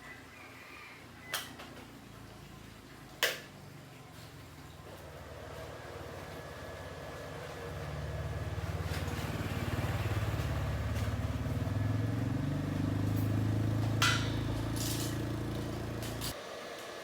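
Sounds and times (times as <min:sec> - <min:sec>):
engine rumbling: 0:04.7 - 0:16.4.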